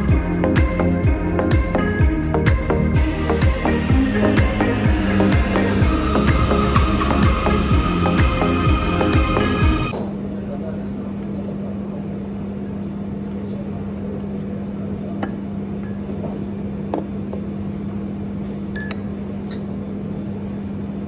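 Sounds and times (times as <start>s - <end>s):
steady low hum: 0.0s - 10.0s
glassware clinking: 18.8s - 19.6s.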